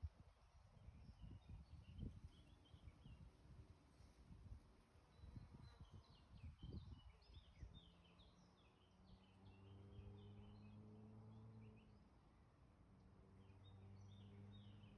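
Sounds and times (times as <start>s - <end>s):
songbird chirping: 5.1s - 12.0s, 13.3s - 14.9s.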